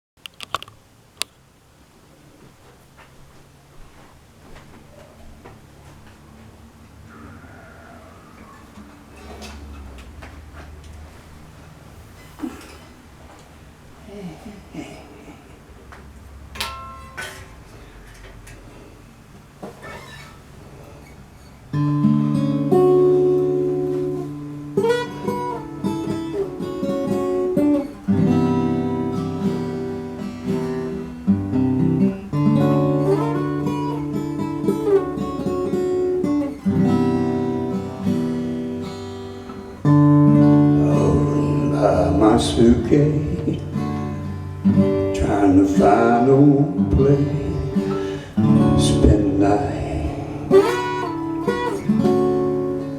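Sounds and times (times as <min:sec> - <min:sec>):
acoustic guitar chords: 0:16.4 - 0:18.2, 0:20.7 - 0:52.9.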